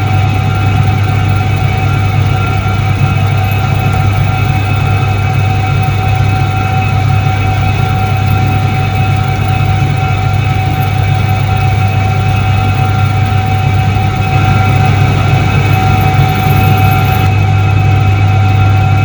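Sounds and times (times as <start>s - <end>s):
washing machine motor humming: 0.0s - 19.0s.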